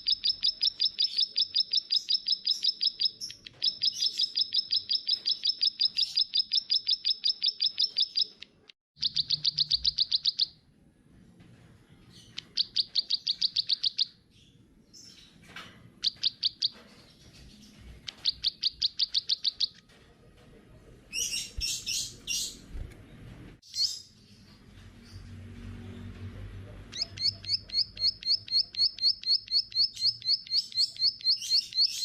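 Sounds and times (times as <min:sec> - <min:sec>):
small songbird singing trills: 0:00.0 - 0:10.6, 0:12.2 - 0:15.4, 0:17.6 - 0:19.8, 0:26.9 - 0:32.0
scratchy bird chirps: 0:16.0 - 0:19.9, 0:21.1 - 0:22.9.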